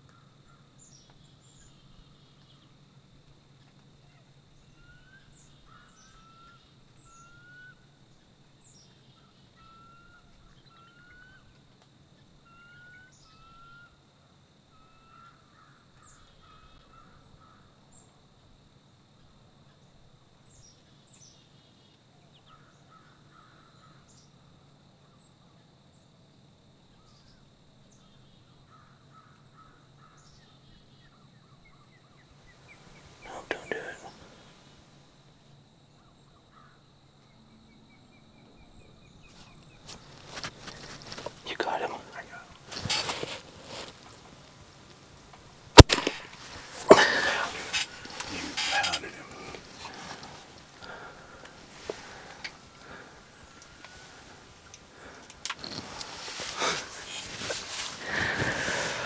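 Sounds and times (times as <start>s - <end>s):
chattering bird calls: 32.7s - 34.3s, 45.8s - 54.3s
high bird chips: 39.4s - 44.3s, 45.8s - 54.3s.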